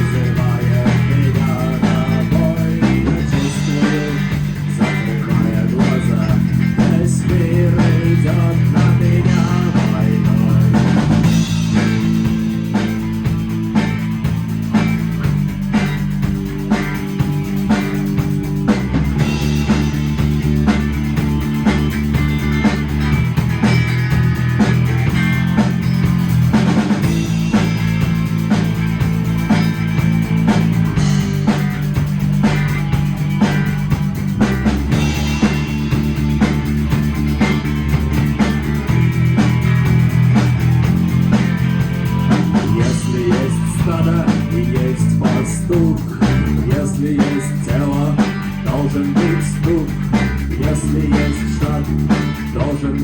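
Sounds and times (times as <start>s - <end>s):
bass: 0.0s - 53.0s
drum kit: 0.0s - 53.0s
guitar: 0.0s - 53.0s.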